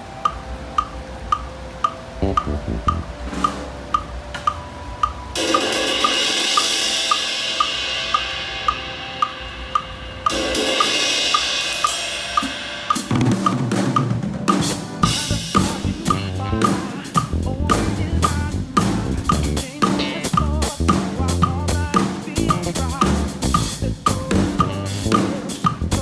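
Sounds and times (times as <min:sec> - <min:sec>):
click track: 0:00.2 - 0:05.2
bass guitar: 0:02.2 - 0:03.2, 0:15.0 - 0:26.0
drum kit groove: 0:02.2 - 0:04.6, 0:05.4 - 0:26.0
cymbal washes: 0:05.4 - 0:17.4.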